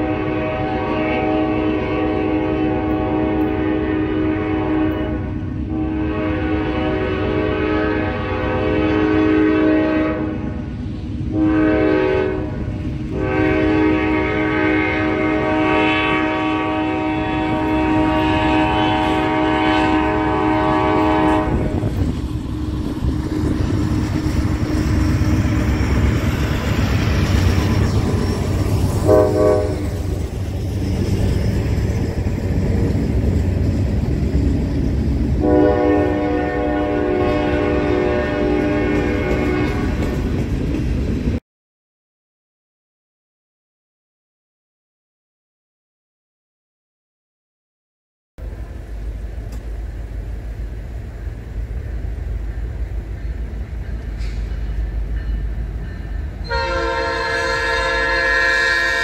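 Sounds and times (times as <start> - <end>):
locomotive air horn blasts: 0.0 - 10.6, 11.3 - 21.9, 27.7 - 30.1, 35.4 - 40.1, 56.4 - 59.0
train rumbling past: 0.0 - 41.4, 48.4 - 59.0.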